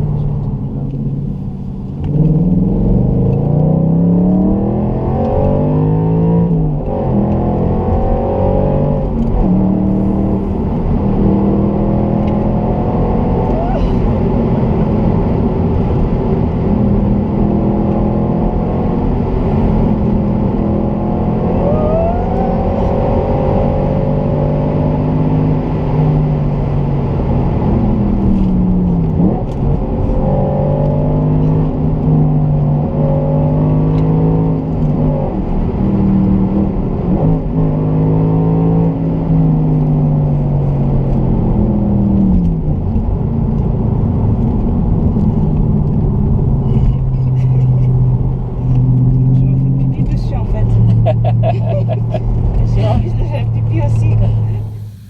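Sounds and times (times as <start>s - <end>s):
car engine running: 39.7s - 55.0s.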